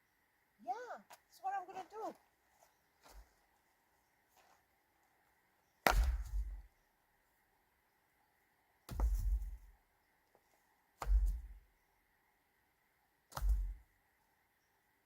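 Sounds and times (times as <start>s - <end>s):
heavy thuds with low rumble: 8.9s - 9.7s, 11.1s - 11.6s, 13.4s - 13.8s.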